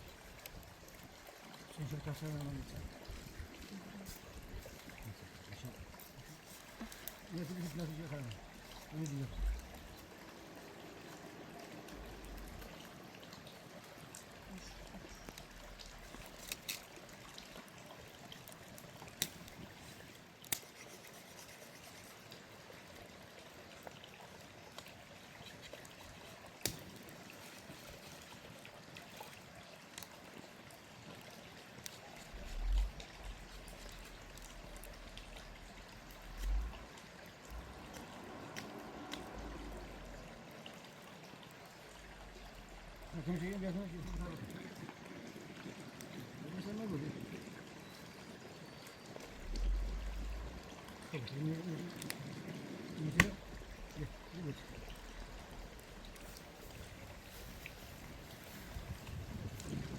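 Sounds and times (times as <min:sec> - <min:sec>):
water trickling: 0:00.0 - 0:59.9
dull low thumps: 0:36.4 - 0:36.9, 0:49.4 - 0:50.7.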